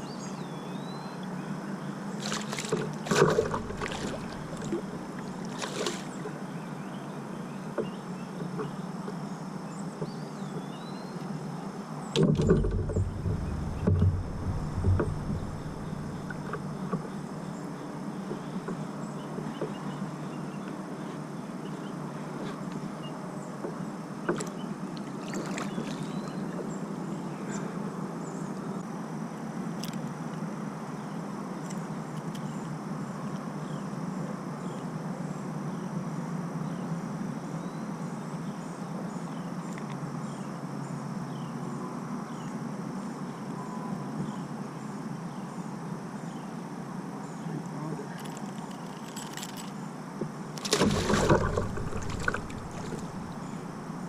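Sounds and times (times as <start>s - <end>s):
water around kayak: 0.0s - 28.9s, 47.6s - 54.0s
wind noise: 12.2s - 16.9s, 50.7s - 54.0s
sharp knocks: 12.2s - 17.1s, 50.7s - 54.0s.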